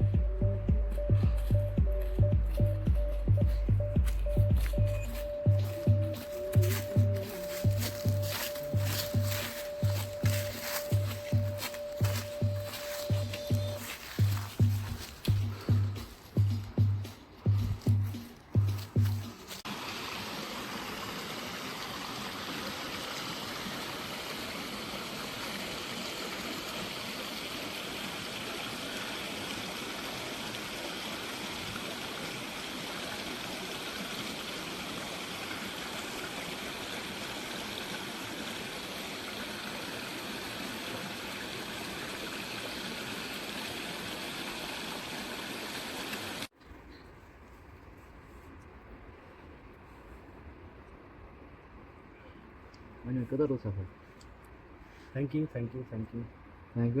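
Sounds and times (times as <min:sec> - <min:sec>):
mountain stream rushing: 0:05.1 - 0:16.4, 0:18.8 - 0:46.5.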